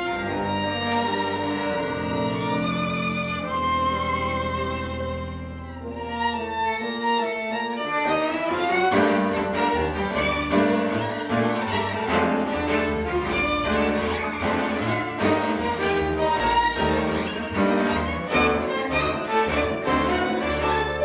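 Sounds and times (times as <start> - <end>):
violin and cello playing: 0.0 - 21.0.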